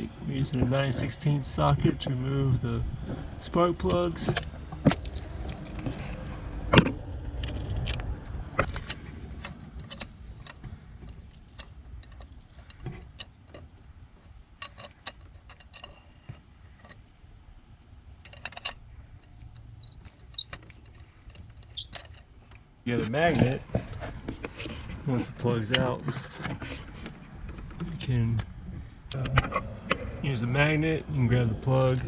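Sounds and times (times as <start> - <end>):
ratchet clicking: 18.2 - 22.2.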